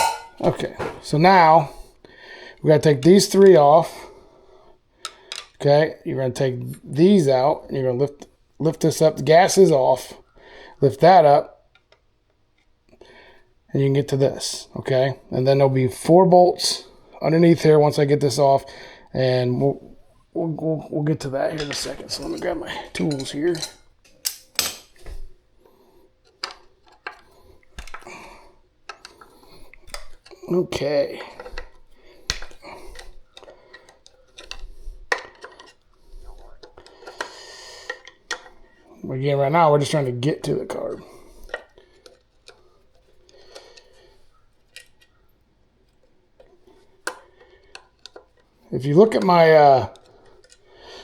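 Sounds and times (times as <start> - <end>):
hand tools clinking: 0.0 - 1.2, 21.2 - 25.1
hand tools clicking and tapping: 0.0 - 1.3, 5.0 - 5.6, 21.2 - 25.2, 26.2 - 38.9, 40.5 - 45.3, 45.9 - 51.0.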